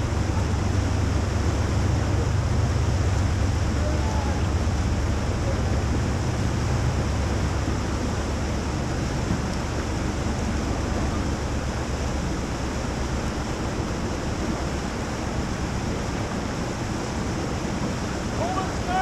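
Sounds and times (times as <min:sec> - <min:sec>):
river rapids rushing: 0:09.9 - 0:19.0.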